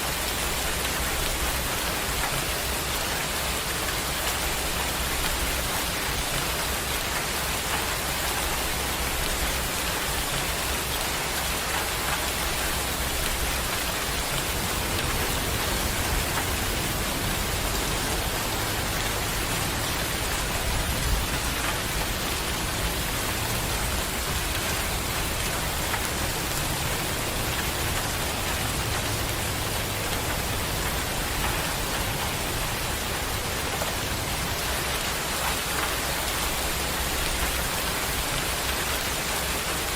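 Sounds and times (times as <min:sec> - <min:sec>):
heavy rain falling: 0:00.0 - 0:39.9
distant thunder rumble: 0:13.0 - 0:34.7.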